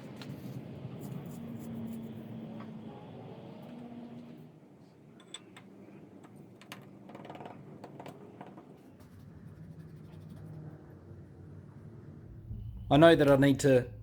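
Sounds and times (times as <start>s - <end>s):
low steady hum: 11.6s - 14.0s.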